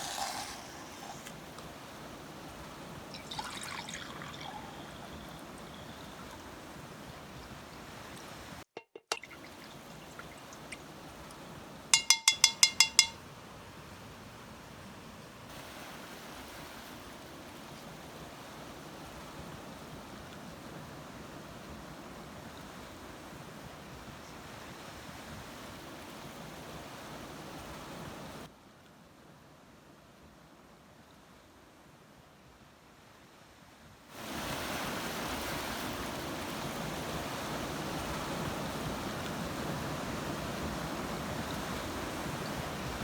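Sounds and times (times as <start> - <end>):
faint hiss: 0.0 - 8.6, 12.7 - 29.1
water washing: 0.0 - 13.2
ocean waves: 0.0 - 28.5, 34.1 - 43.0
paintbrush clinking against glass: 8.8 - 9.4, 12.0 - 13.2.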